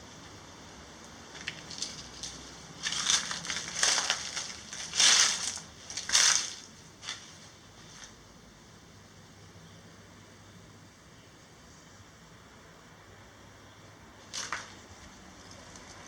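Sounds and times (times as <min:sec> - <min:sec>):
brittle object crunching: 0:01.4 - 0:07.4.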